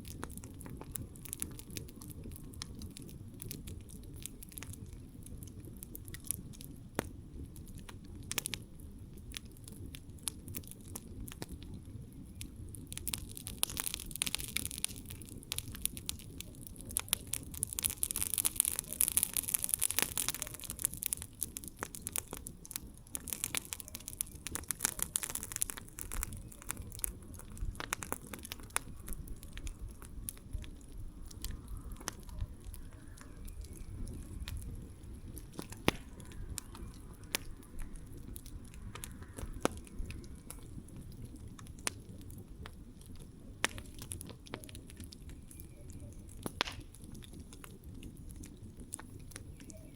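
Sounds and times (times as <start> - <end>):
campfire crackling: 0.0 - 49.9
low rumble of flames: 0.0 - 49.9.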